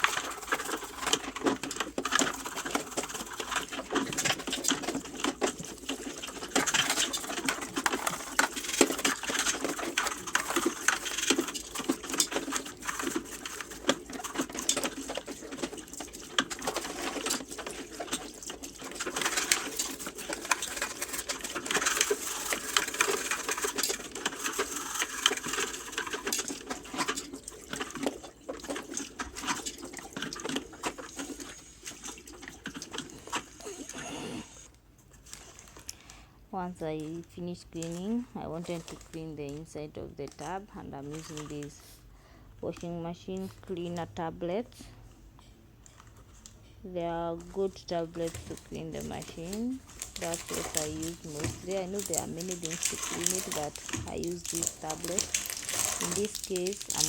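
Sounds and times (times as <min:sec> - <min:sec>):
toothbrush scrubbing a filter: 0:00.0 - 0:35.3, 0:48.1 - 0:57.0.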